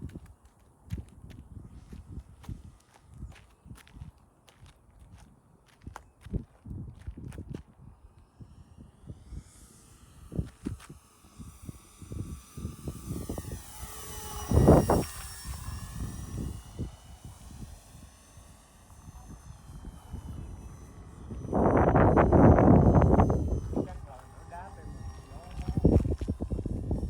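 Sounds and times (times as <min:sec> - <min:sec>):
wind buffeting microphone: 0:00.0 - 0:27.0
model plane motors whining: 0:06.4 - 0:27.0.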